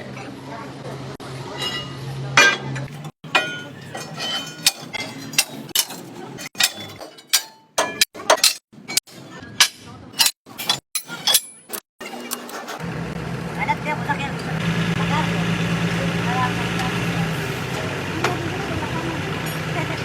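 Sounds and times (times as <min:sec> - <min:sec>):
metal parts clinking: 0:01.6 - 0:12.8.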